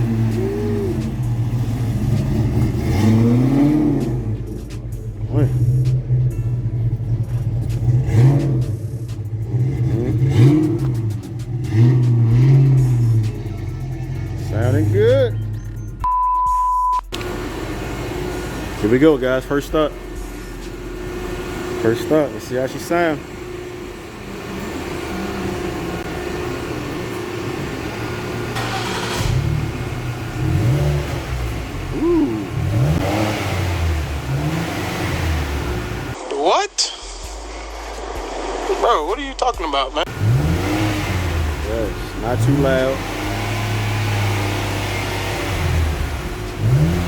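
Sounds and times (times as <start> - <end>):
car engine revving: 0.0 - 16.1, 17.1 - 36.2, 37.2 - 47.0.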